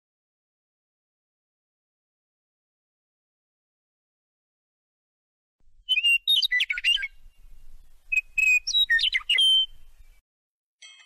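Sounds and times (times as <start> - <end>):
bird chirps and trills: 5.9 - 10.2.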